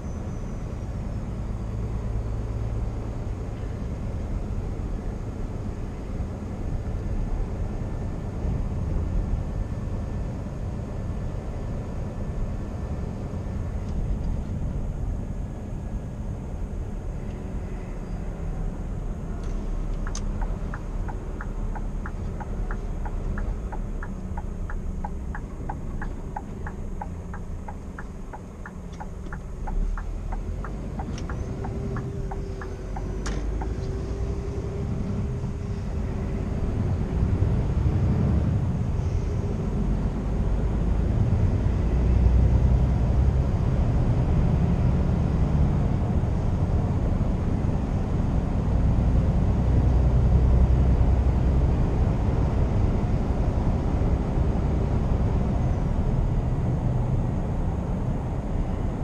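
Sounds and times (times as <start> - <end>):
truck engine and road rumble: 0.0 - 59.0
turn signal ticking: 19.4 - 34.4.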